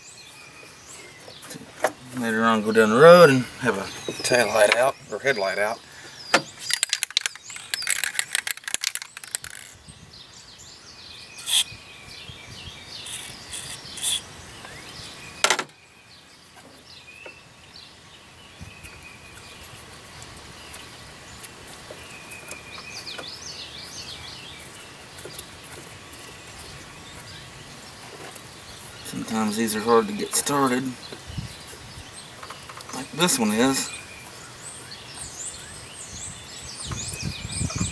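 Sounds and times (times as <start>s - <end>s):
birds chirping and singing: 0.0s - 37.9s
rapid sharp clicks: 6.7s - 9.8s.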